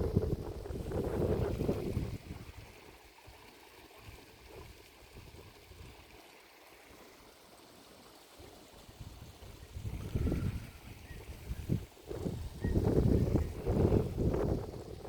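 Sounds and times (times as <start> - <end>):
wind on microphone: 0.0 - 2.7, 9.0 - 15.0.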